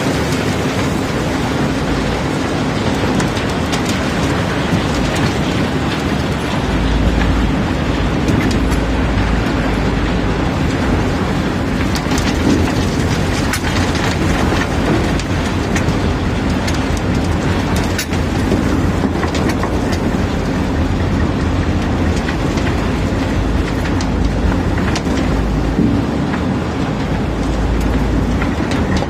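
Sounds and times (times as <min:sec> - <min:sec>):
stones rumbling and rattling: 0:00.0 - 0:29.0.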